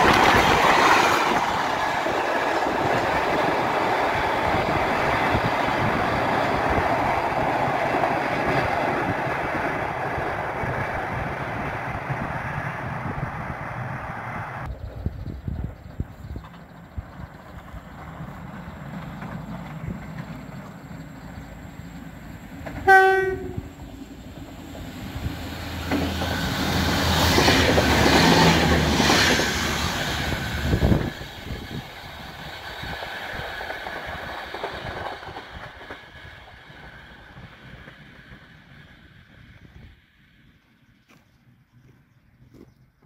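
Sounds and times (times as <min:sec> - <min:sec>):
rail and wheel noise: 0:00.0 - 0:43.0
train engine rumble: 0:00.0 - 0:43.0
train horn blast: 0:22.8 - 0:23.8.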